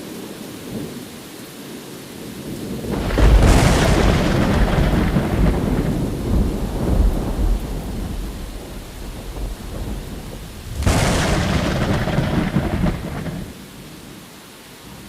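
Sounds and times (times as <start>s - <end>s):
thunder rumbling: 2.6s - 14.1s
sharp thunderclap: 2.8s - 13.9s.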